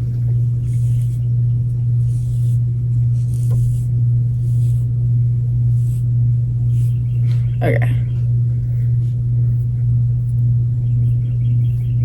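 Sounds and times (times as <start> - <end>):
vehicle cabin drone: 0.0 - 12.0.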